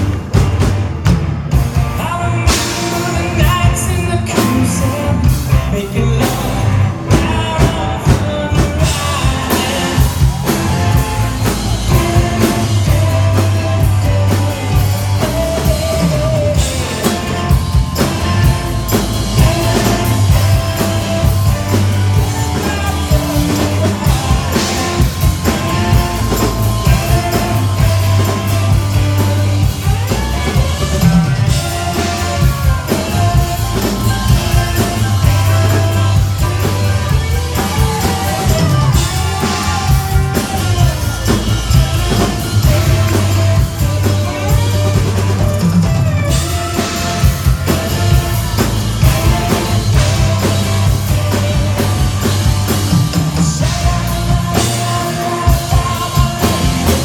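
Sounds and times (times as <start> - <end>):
bass line: 0.0 - 57.0
drum kit: 0.0 - 57.0
live band playing: 0.0 - 57.0
person singing: 1.5 - 57.0.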